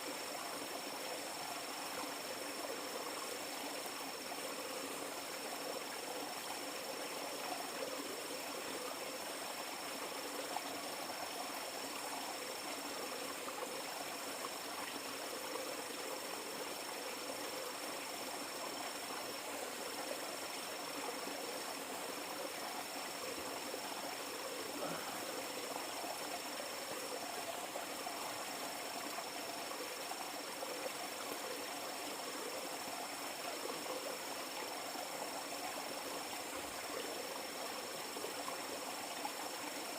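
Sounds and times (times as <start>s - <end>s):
insect trilling: 22.8s - 27.2s.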